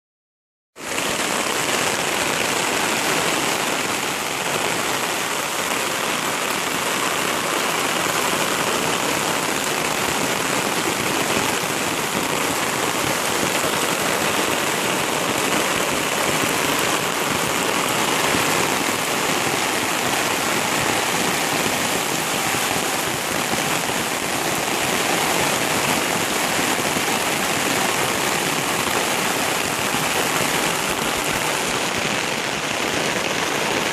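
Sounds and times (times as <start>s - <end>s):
heavy rain pouring: 0.8s - 33.9s.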